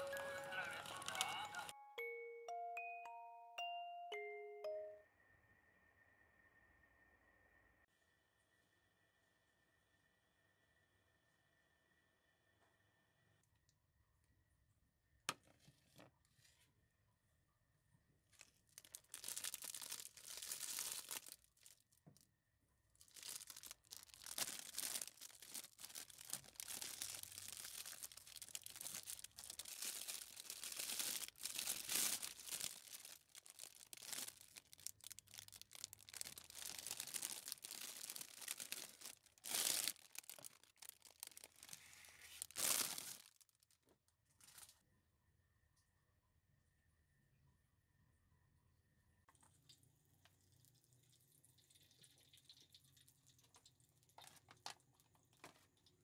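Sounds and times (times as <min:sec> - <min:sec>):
material rustling and tearing: 0:18.4 - 0:21.8, 0:23.0 - 0:43.7.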